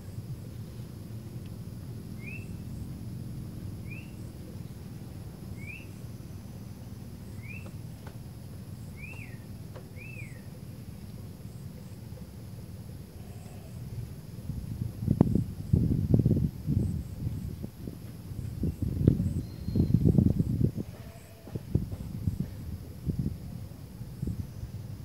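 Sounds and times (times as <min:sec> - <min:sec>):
low background rumble: 0:00.0 - 0:25.0
bird whistling short notes: 0:07.4 - 0:07.8, 0:09.0 - 0:09.4, 0:19.4 - 0:20.0.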